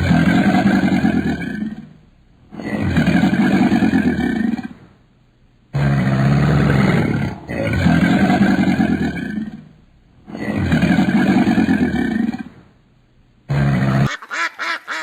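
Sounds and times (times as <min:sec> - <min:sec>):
big cat roaring: 0:00.0 - 0:04.8, 0:05.7 - 0:12.6, 0:13.5 - 0:14.1.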